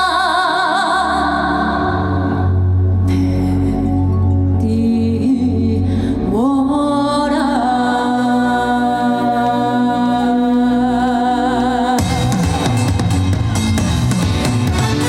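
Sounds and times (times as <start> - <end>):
woman singing: 0.0 - 3.2, 4.6 - 12.6
live band playing: 12.0 - 15.0.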